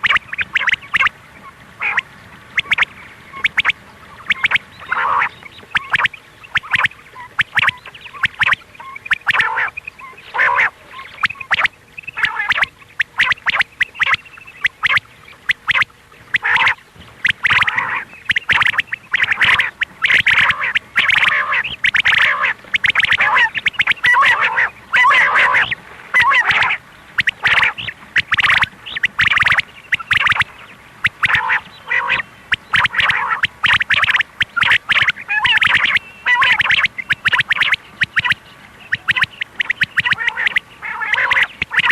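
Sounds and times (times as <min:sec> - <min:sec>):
quail calling: 0:00.0 - 0:41.9.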